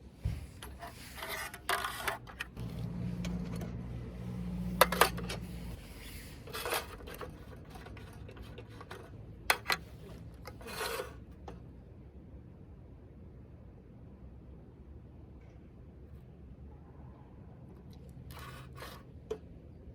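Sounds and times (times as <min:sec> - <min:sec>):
handling rubbing and scraping: 0:00.0 - 0:11.6, 0:18.2 - 0:19.5
low hum: 0:02.6 - 0:06.1.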